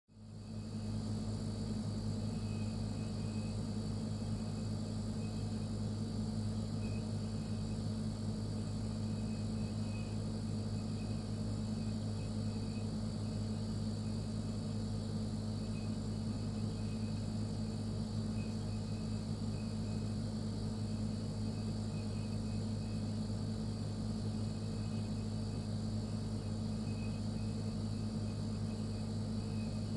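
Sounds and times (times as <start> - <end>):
refrigerator humming: 0.1 - 29.9.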